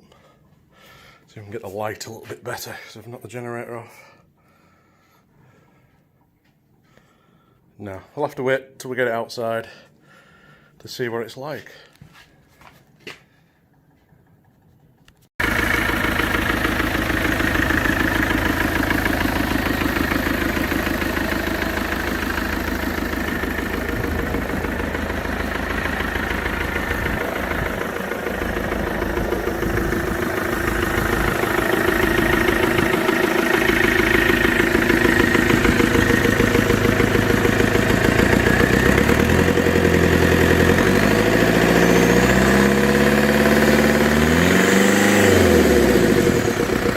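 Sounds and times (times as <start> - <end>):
tractor diesel engine running: 15.4 - 46.9.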